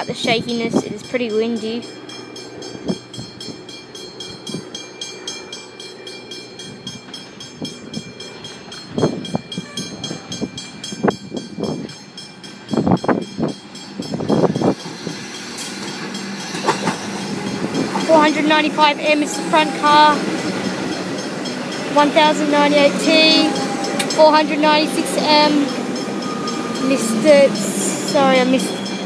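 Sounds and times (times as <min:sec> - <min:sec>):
electric train arriving: 0:00.0 - 0:29.0
wind on microphone: 0:12.7 - 0:15.2.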